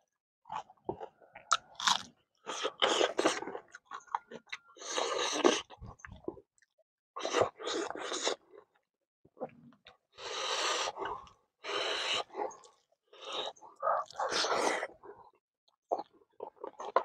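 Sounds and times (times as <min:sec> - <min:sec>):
close chewing and mouth sounds: 0:00.5 - 0:17.0.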